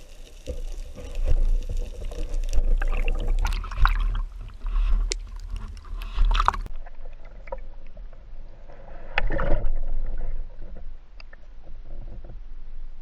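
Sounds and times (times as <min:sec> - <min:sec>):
water sloshing and splashing: 0:00.0 - 0:07.8.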